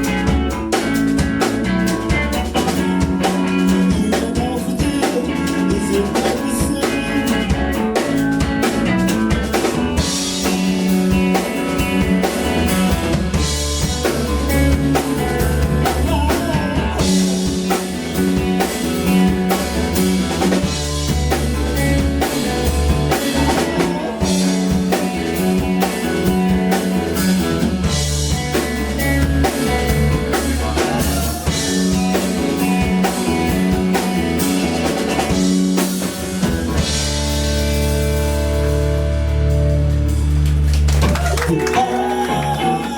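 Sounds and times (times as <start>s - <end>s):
live band playing: 0.0s - 42.9s.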